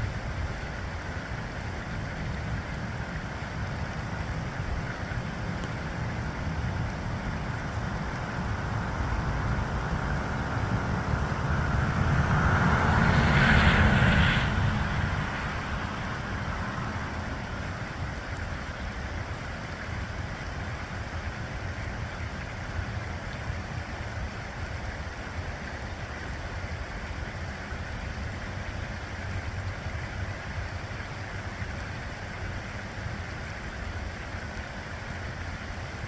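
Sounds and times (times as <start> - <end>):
wind rumbling on microphone: 0.0 - 25.1.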